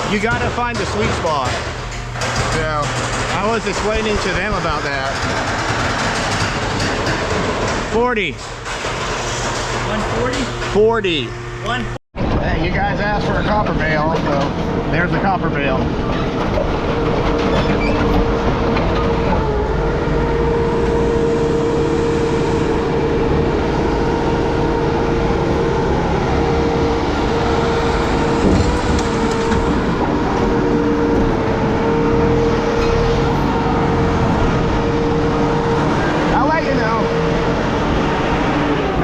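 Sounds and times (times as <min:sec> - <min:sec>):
heavy machinery rumbling: 0:00.0 - 0:39.0
steady high hum: 0:09.2 - 0:39.0.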